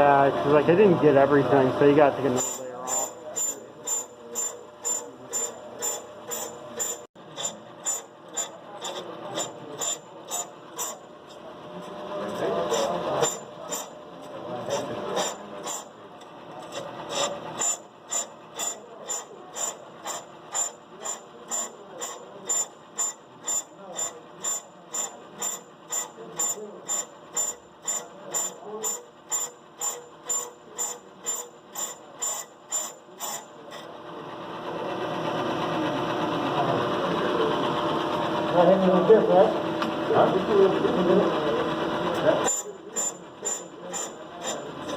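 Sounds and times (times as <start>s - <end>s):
brake lathe cutting noise: 0.0s - 44.9s
brake lathe ticking: 12.7s - 33.9s.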